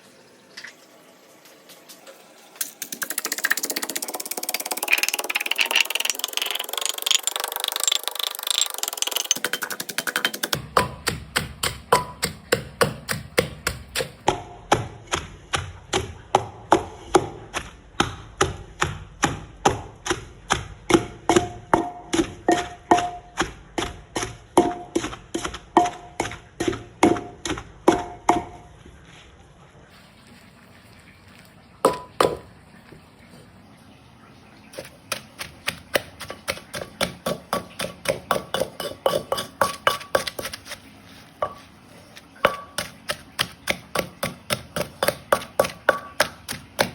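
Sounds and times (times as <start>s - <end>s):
knife chopping on cutting board: 9.9s - 16.1s, 34.8s - 41.7s, 42.4s - 46.9s.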